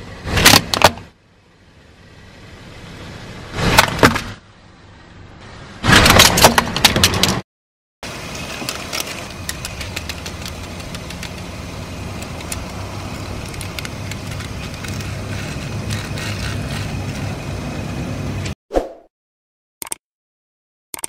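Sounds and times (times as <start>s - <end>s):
car engine idling: 0.0s - 3.6s, 4.4s - 5.8s, 8.0s - 18.5s.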